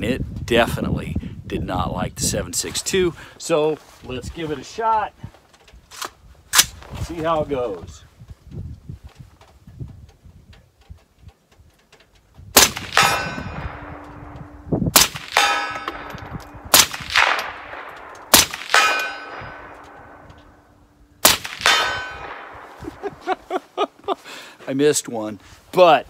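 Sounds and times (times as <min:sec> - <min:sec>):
rifle shots: 0:12.6 - 0:23.1
bullet clanging on steel target: 0:12.8 - 0:22.7.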